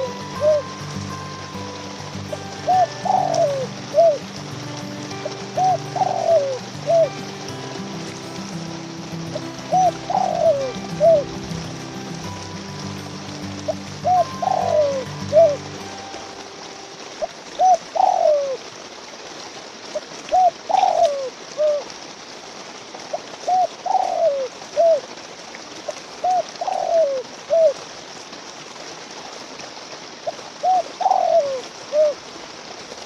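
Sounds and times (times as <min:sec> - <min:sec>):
dove cooing: 0:00.0 - 0:00.7, 0:02.6 - 0:04.3, 0:05.5 - 0:07.1, 0:09.6 - 0:11.3, 0:13.2 - 0:15.7, 0:17.6 - 0:18.6, 0:20.4 - 0:21.8, 0:23.5 - 0:25.0, 0:26.2 - 0:27.8, 0:30.6 - 0:32.2
faint steady hiss: 0:00.0 - 0:33.0.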